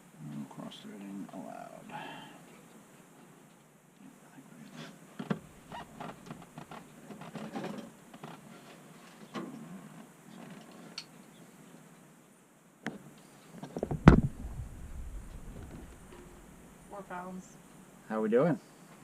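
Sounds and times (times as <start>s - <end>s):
heavy thump with knocks: 13.8s - 16.5s.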